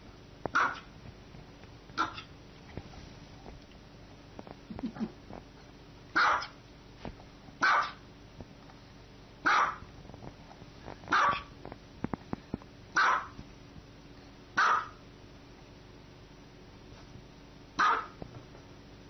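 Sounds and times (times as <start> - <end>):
small dog barking: 0.5 - 0.9, 2.0 - 2.3, 6.2 - 6.6, 7.6 - 8.0, 9.4 - 9.9, 11.1 - 11.5, 13.0 - 13.4, 14.6 - 15.0, 17.8 - 18.2.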